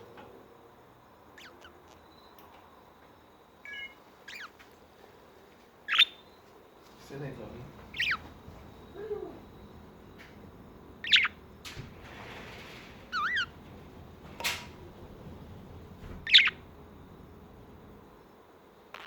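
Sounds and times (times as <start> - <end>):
budgerigar chirping: 1.4 - 2.0, 3.6 - 4.6, 5.9 - 6.3, 7.9 - 8.3, 11.0 - 11.4, 13.1 - 13.6, 16.2 - 16.7.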